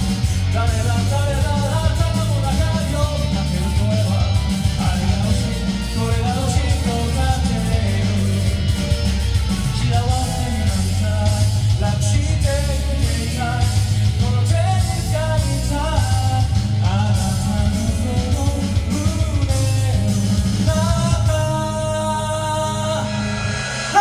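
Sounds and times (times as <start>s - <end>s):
person singing: 0.0s - 24.0s
rock backing track: 0.0s - 24.0s.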